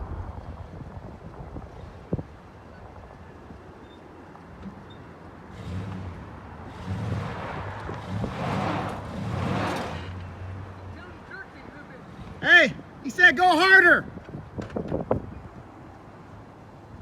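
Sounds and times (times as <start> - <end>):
rushing of wheels and strap: 4.6 - 10.6
truck engine revving: 5.5 - 12.8.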